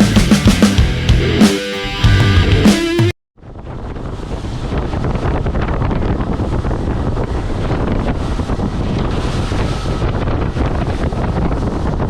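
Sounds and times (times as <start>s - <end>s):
water and waves rushing: 3.4s - 12.0s
wind buffeting microphone: 3.4s - 12.0s.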